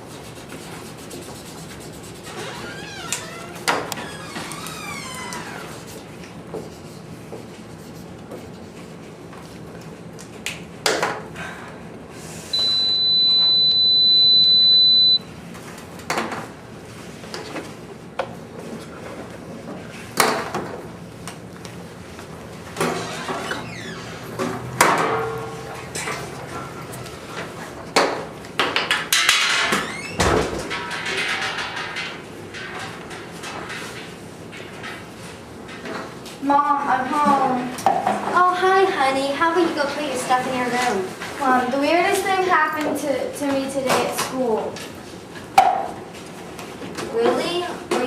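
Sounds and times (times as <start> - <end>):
high-pitched pure tone: 12.6 - 15.2.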